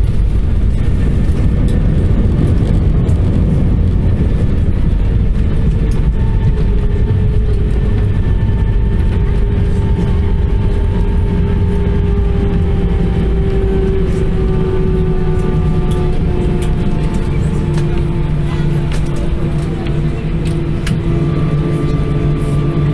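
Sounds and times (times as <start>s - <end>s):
cabin low rumble: 0.0s - 22.9s
jet engines winding down: 0.0s - 22.9s.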